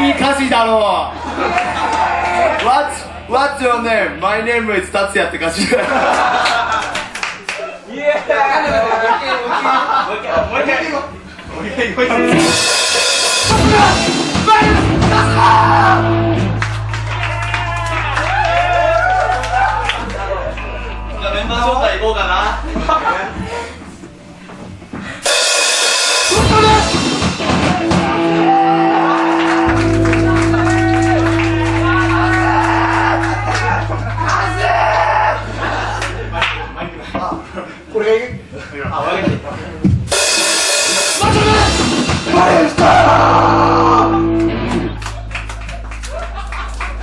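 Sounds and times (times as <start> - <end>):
electric guitar notes: 12.0 - 23.0, 25.2 - 37.4, 40.1 - 47.0
bass note: 12.0 - 23.4, 25.2 - 37.5, 40.1 - 47.0
live rock band playing: 12.1 - 21.3, 25.2 - 37.1, 40.1 - 46.8
drum-kit fill: 12.2 - 20.3, 25.1 - 36.9, 40.1 - 47.0
cymbal crash: 12.3 - 20.1, 25.2 - 28.4, 29.1 - 36.8, 40.1 - 42.4
low hum: 15.1 - 24.3, 28.2 - 37.8.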